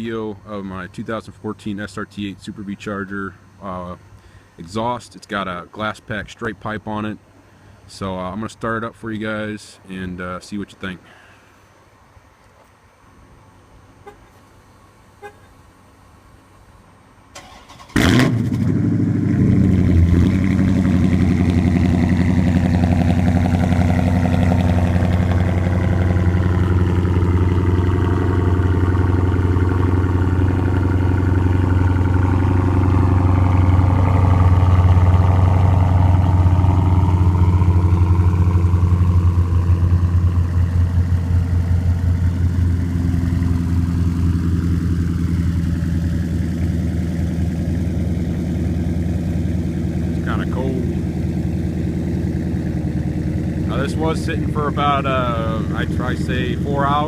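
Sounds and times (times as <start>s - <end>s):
engine cranking and starting: 17.4s - 18.8s
deep engine idling: 18.0s - 57.0s.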